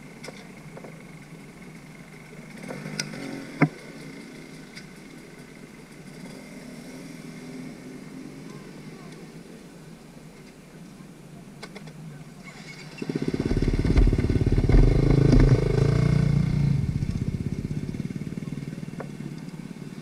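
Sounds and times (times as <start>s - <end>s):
dirt bike engine passing: 12.5s - 19.3s.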